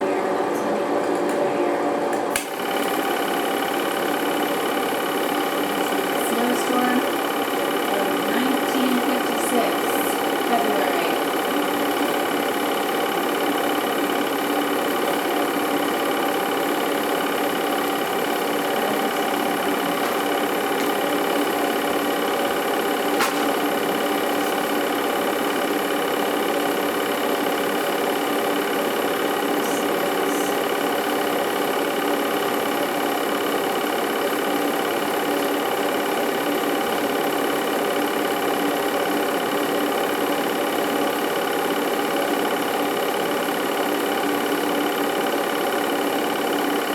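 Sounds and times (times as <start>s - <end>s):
film projector whirring: 0.0s - 46.9s
projector click: 2.1s - 3.1s, 17.2s - 25.8s.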